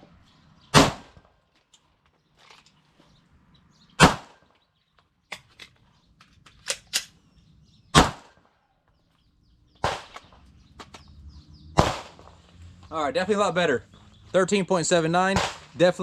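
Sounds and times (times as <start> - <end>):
rifle shots: 0.7 - 1.3, 4.0 - 4.4, 7.9 - 8.5, 9.8 - 10.4, 11.8 - 12.4, 15.2 - 16.0
magazine change clicks: 5.3 - 7.2.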